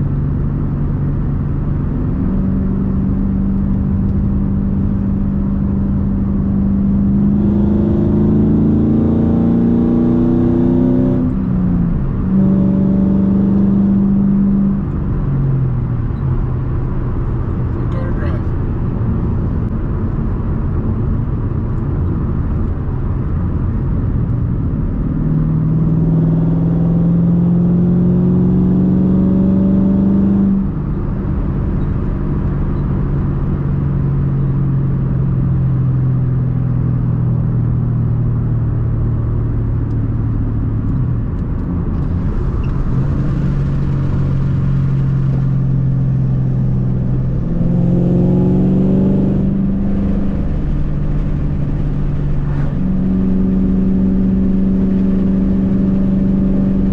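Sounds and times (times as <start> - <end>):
car engine accelerating: 0.0 - 56.9.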